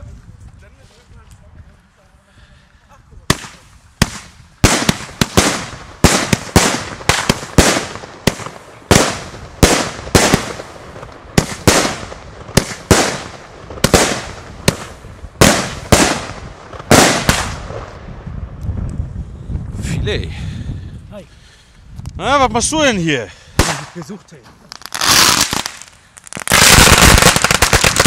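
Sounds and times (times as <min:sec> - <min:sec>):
fireworks battery firing bangs: 0:03.3 - 0:17.8.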